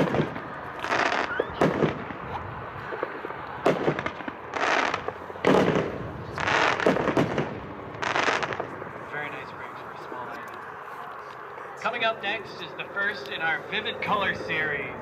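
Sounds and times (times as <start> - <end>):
firework bangs: 0.0 - 9.6
firework hissing crackling tail: 0.0 - 9.7.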